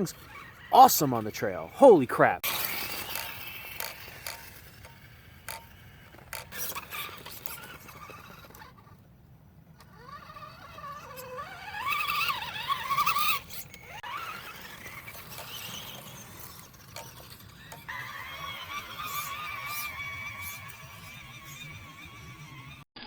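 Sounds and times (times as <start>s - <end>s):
electric motor whining: 9.8s - 22.8s.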